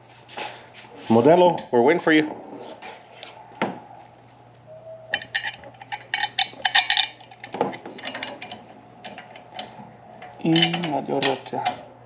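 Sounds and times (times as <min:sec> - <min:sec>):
steady low hum: 0:00.0 - 0:12.0
metal hardware clinking: 0:05.1 - 0:11.8.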